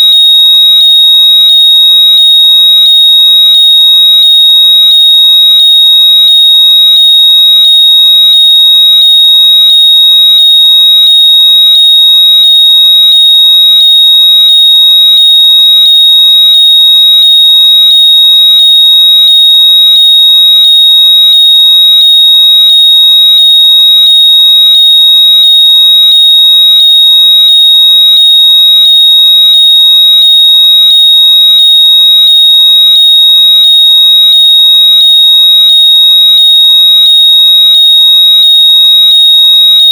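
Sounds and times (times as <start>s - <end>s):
high-pitched electronic tone: 0.0s - 39.9s.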